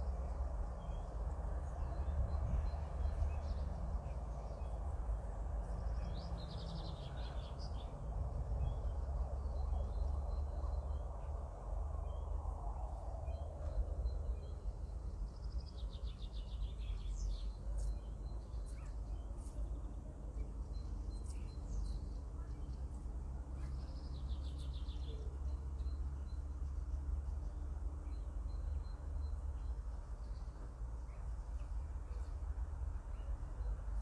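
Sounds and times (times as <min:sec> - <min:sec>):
steady low rumble: 0:00.0 - 0:34.0
small birds chirping: 0:13.6 - 0:34.0.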